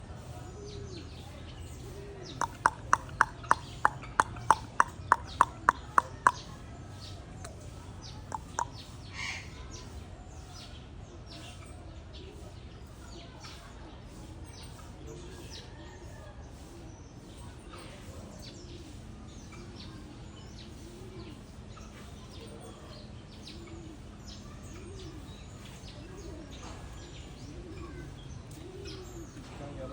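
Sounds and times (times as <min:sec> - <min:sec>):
small birds chirping: 0:00.0 - 0:29.9
dove cooing: 0:02.0 - 0:06.6, 0:07.4 - 0:09.4, 0:23.4 - 0:29.6
person clicking tongue: 0:02.4 - 0:06.5, 0:08.3 - 0:08.8.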